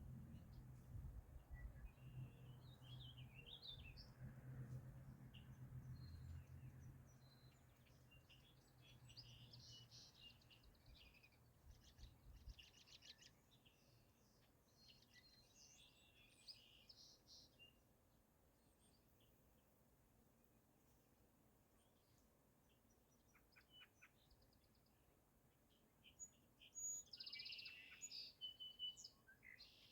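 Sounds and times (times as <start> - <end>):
birds chirping and trilling: 26.1 - 29.9.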